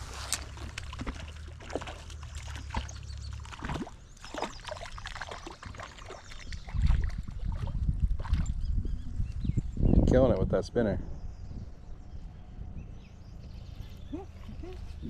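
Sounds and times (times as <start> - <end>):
water splashing and trickling: 0.0 - 8.9
wind rumble on microphone: 5.6 - 15.0.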